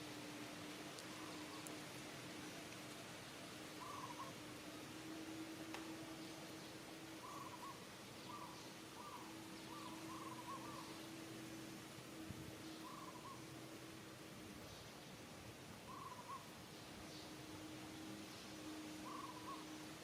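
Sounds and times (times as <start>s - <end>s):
faint low hum: 0.0s - 20.0s
bird calling in wavering notes: 1.1s - 1.8s, 3.8s - 4.4s, 5.1s - 13.9s, 15.9s - 16.6s, 18.4s - 20.0s.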